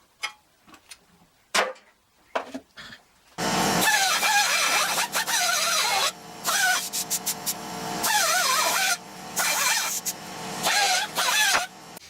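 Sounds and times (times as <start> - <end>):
drill hole saw grinding steel: 3.4 - 12.0.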